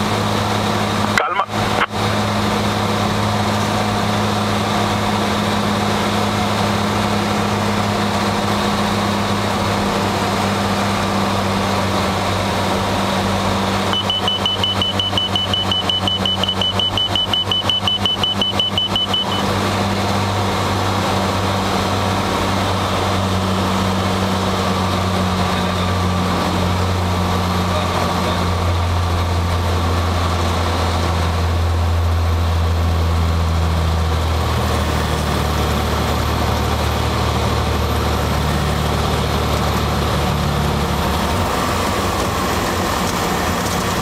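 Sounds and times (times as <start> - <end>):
piston engine and propeller droning: 0.0 - 44.0
high rapid beeping tone: 13.9 - 19.4.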